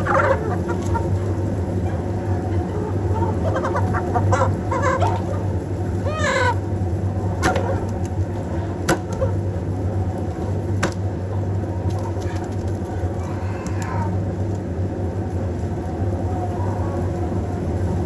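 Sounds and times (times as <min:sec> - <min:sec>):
chickens clucking: 0:00.0 - 0:18.0
steady low hum: 0:00.0 - 0:18.0.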